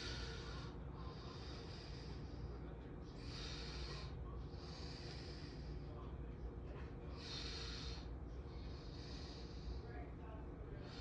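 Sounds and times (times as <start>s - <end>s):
person breathing: 0.0s - 2.5s.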